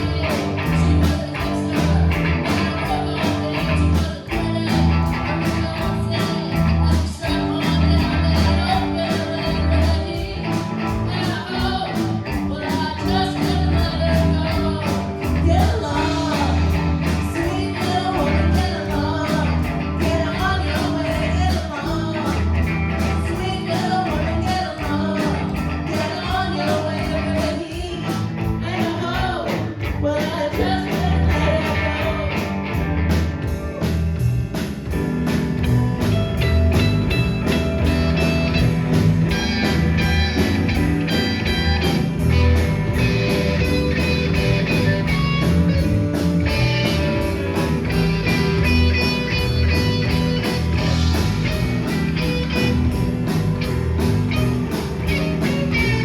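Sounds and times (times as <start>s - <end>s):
person singing: 0.0s - 22.5s, 23.2s - 32.5s
bass guitar: 0.0s - 56.0s
electric guitar: 0.0s - 56.0s
drums beat: 31.0s - 56.0s.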